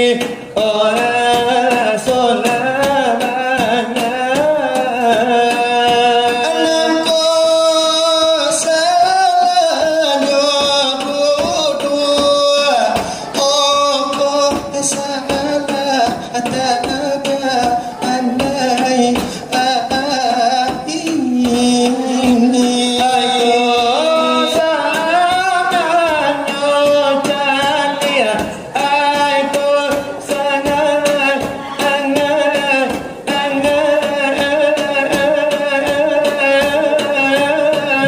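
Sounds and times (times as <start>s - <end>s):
person singing melismatic line: 5.8s - 9.6s.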